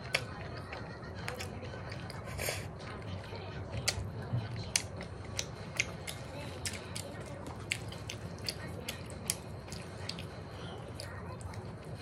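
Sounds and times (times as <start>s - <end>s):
person chewing: 0.0s - 12.0s.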